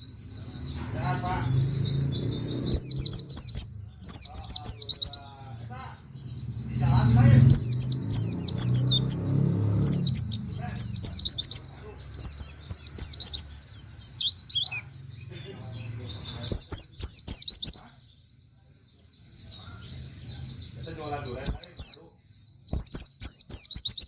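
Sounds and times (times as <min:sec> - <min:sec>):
bird twittering song: 0:00.0 - 0:24.0.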